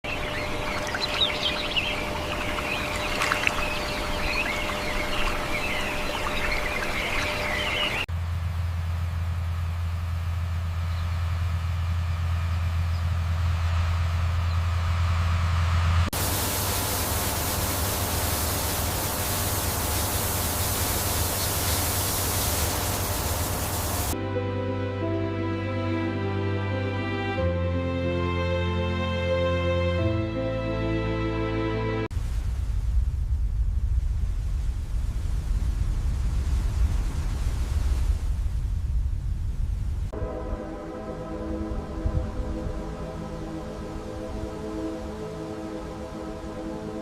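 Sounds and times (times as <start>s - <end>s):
low steady hum: 0.0s - 24.2s
birds chirping and calling: 0.1s - 8.1s
soft music: 0.1s - 8.1s, 24.1s - 32.1s, 40.2s - 47.0s
steady background hiss: 0.1s - 10.6s, 16.2s - 24.2s
loud even hiss: 16.1s - 24.2s.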